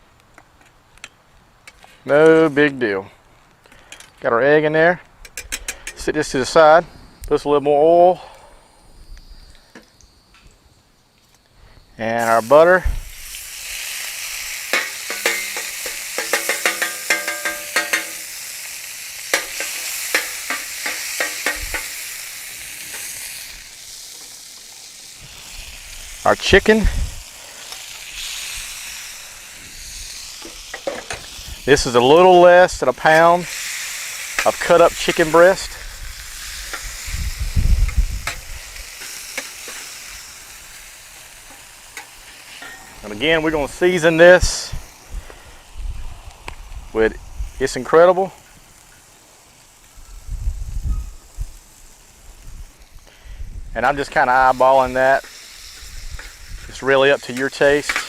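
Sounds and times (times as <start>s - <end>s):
oil sizzling on a griddle: 11.1s - 58.0s
spatula clinking on metal pan: 14.7s - 18.2s.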